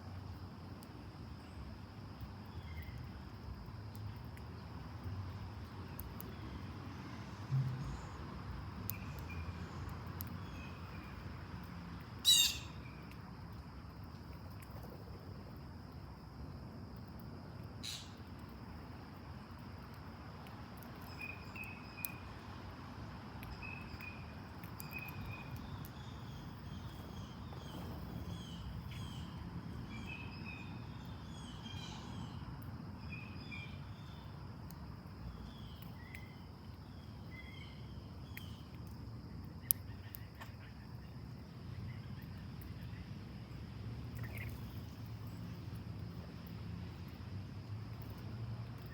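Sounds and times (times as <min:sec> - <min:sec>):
low outdoor background noise: 0:00.0 - 0:48.9
songbirds chirping: 0:23.4 - 0:39.0.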